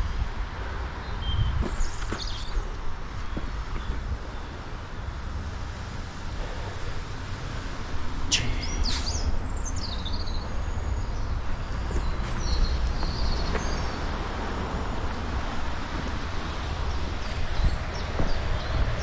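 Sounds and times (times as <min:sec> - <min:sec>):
small birds chirping: 0:01.0 - 0:04.8, 0:08.3 - 0:19.0.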